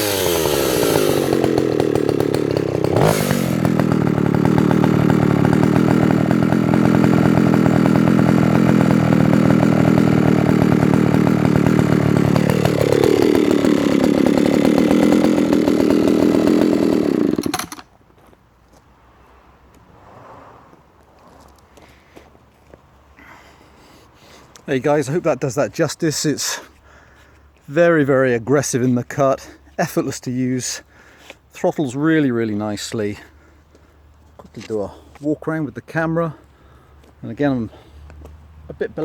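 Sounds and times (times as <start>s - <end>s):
chainsaw running at high revs: 0.0s - 17.9s.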